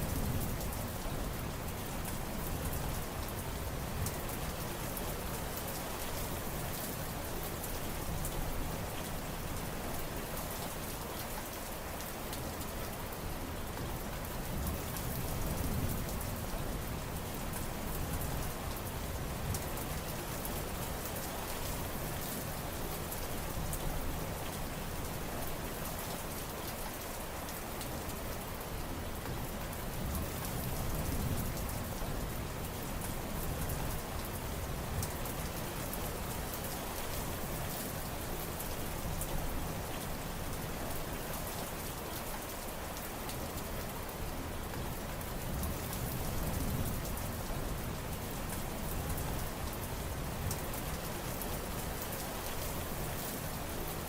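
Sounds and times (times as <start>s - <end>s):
heavy rain pattering: 0.0s - 54.0s.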